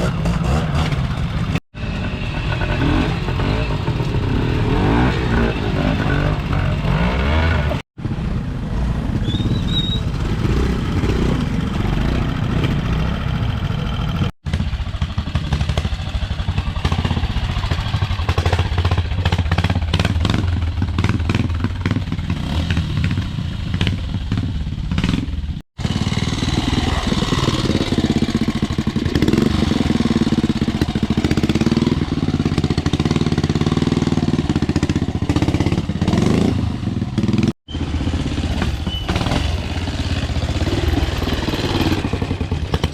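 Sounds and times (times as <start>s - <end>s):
motorcycle engines with throttle blips: 0.0s - 42.9s
clatter: 38.4s - 42.9s.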